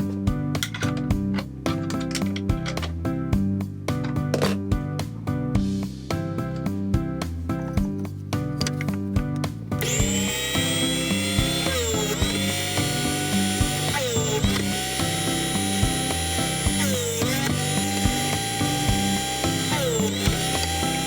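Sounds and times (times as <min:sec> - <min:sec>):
background music with steady beat: 0:00.0 - 0:21.0
drill press motor running: 0:09.8 - 0:21.0.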